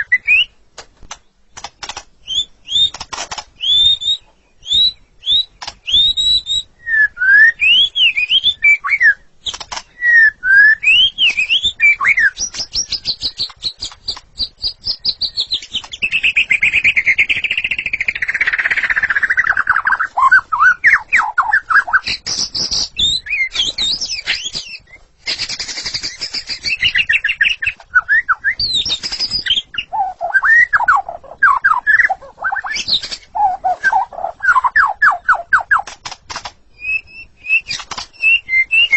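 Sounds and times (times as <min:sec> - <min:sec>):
bird singing whistled phrases: 0:00.0 - 0:00.6, 0:02.2 - 0:03.0, 0:03.6 - 0:35.9, 0:36.8 - 0:38.9
fast chattering bird trill: 0:10.8 - 0:38.9.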